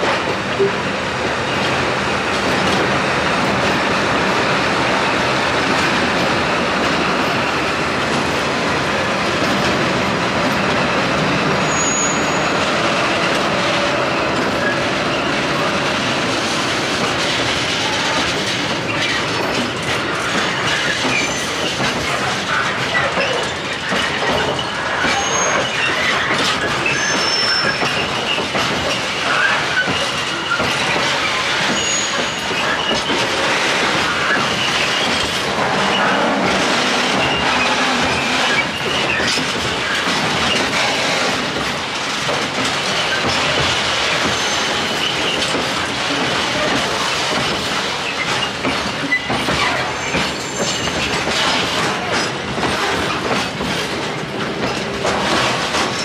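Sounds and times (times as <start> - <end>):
clatter over rail joints: 0.0 - 56.0
train wheels rumbling on rail: 0.0 - 56.0
high wheel squeals: 11.6 - 13.4, 24.4 - 28.4, 29.2 - 33.2, 34.1 - 41.2.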